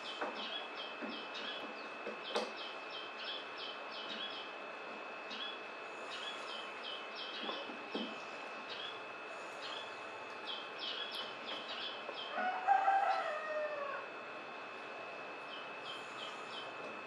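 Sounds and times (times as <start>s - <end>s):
small birds chirping: 0.0s - 4.6s, 5.2s - 12.4s, 15.4s - 16.8s
steady high-pitched tone: 8.2s - 17.0s.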